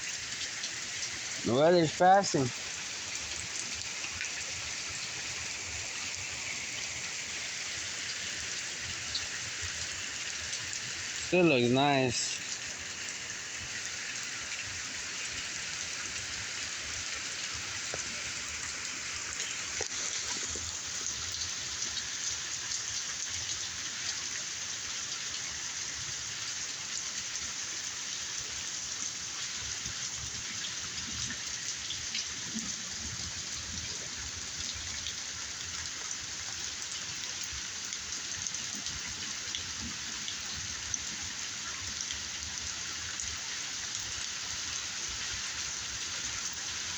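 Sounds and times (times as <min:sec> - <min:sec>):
rain patter: 0:00.0 - 0:46.9.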